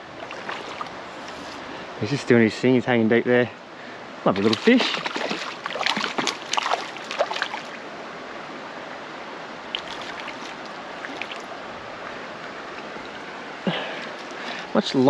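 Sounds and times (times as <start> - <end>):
short water splashes: 0.0 - 1.6, 4.3 - 7.8, 9.7 - 11.6
creek water running: 0.0 - 15.0.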